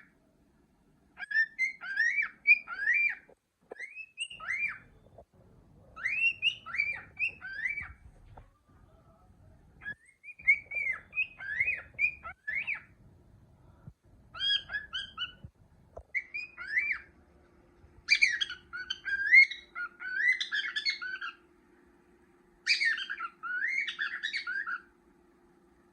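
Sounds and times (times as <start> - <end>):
cockatiel whistling: 1.2 - 5.0, 6.0 - 8.1, 9.8 - 12.9, 14.3 - 15.5, 16.1 - 17.1, 18.0 - 21.4, 22.6 - 24.9.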